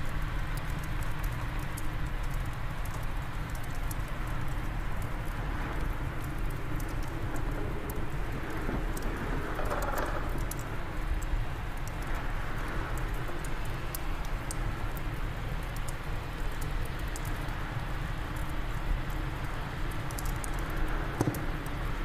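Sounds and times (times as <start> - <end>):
fireplace fire crackling: 0.0 - 22.0
wind blowing: 5.4 - 14.7.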